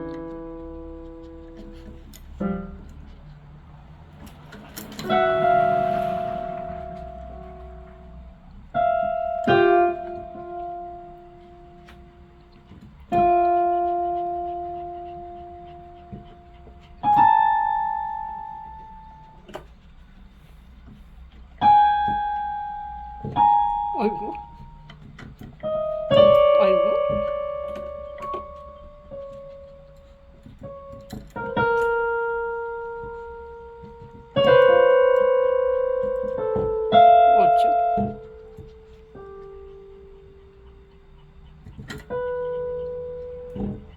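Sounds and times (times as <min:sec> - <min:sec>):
piano note clusters: 0:04.1 - 0:19.6, 0:21.6 - 0:43.9.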